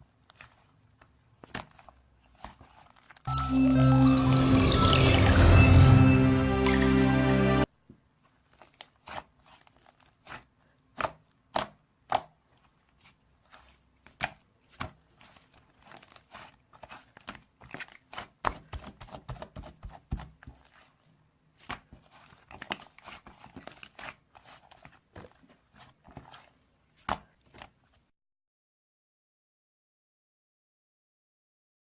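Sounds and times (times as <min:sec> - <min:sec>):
music: 0:03.3 - 0:07.7.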